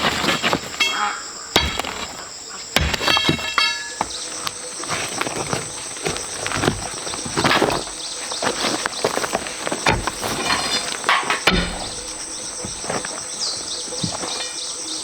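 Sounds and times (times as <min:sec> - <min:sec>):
insects droning: 0:00.0 - 0:15.0
sharp ringing knocks: 0:00.4 - 0:04.6, 0:09.8 - 0:13.0.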